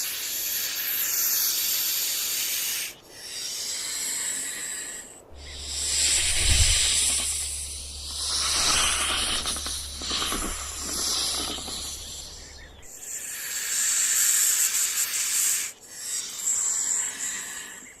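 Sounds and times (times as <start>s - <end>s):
rattlesnake tail rattling: 0.0s - 17.8s.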